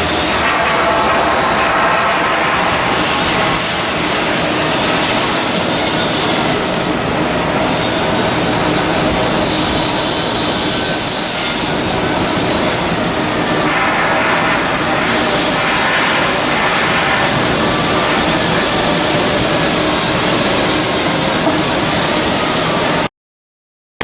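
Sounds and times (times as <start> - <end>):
harsh hiss: 0.0 - 6.9, 7.8 - 23.0
industrial machinery noise: 0.0 - 23.1.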